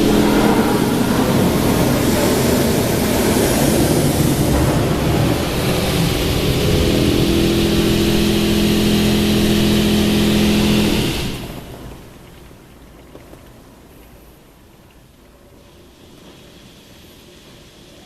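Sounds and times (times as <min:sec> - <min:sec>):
machine hum: 0:00.0 - 0:12.8
water jets hissing: 0:00.0 - 0:12.9, 0:15.5 - 0:18.0.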